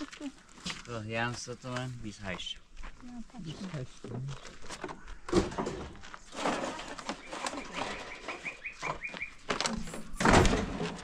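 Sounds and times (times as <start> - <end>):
rustling noise: 3.5 - 11.0
bird chirping: 7.1 - 9.5.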